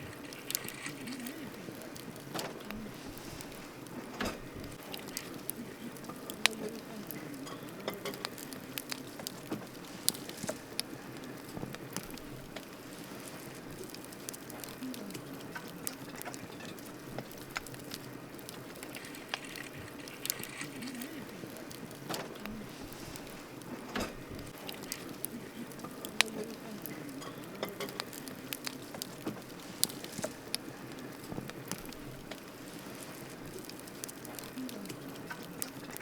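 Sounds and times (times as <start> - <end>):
campfire crackling and popping: 0.0 - 36.0.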